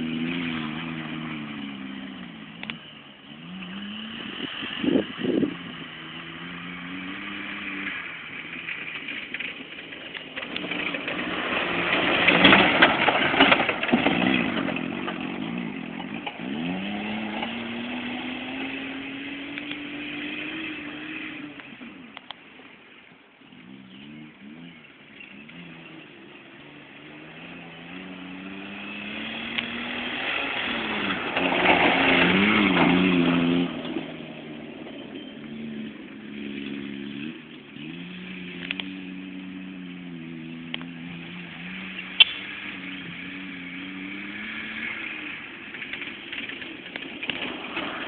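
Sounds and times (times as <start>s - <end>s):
car engine revving: 0.0s - 22.7s, 23.4s - 48.0s
sharp click: 42.2s - 42.5s.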